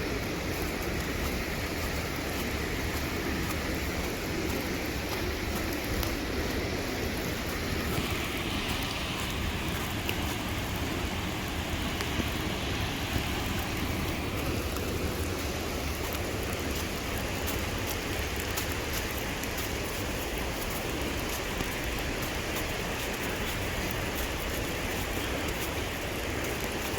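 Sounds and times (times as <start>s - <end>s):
steady rain falling: 0.0s - 26.9s.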